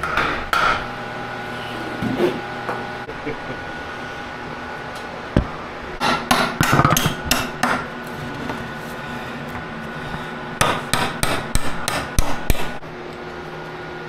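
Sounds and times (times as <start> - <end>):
hammer strikes: 0.0 - 0.9, 5.4 - 7.9, 10.6 - 12.8.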